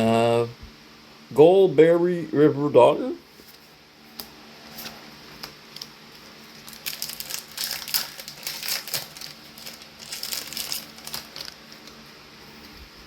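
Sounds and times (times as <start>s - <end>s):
cards and wrapper crinkling: 4.8s - 12.2s.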